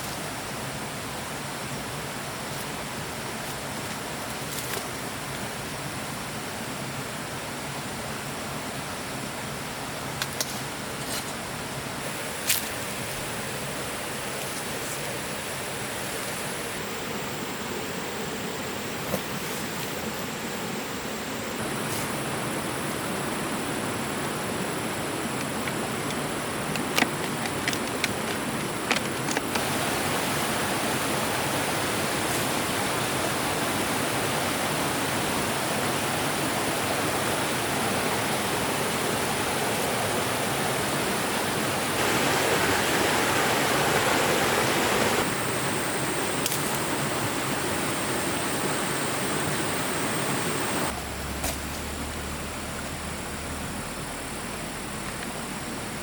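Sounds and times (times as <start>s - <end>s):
steady rushing noise: 41.5s - 51.0s.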